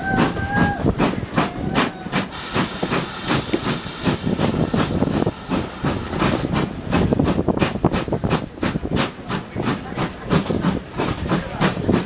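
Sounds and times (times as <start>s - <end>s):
steam train running: 0.0s - 12.0s.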